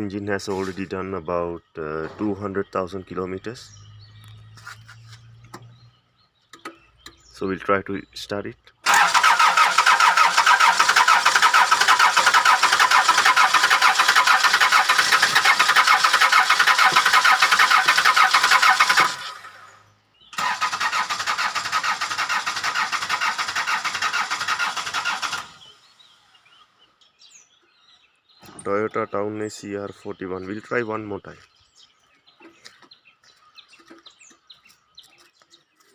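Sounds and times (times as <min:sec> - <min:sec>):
starter motor cranking diesel engine: 0:08.8 - 0:19.7, 0:20.4 - 0:26.2.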